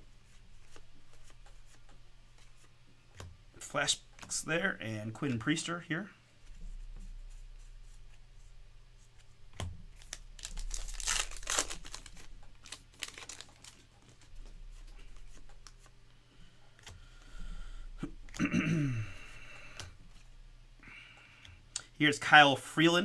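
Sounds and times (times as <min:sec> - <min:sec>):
wrapper crinkling and tearing: 0:10.0 - 0:14.5.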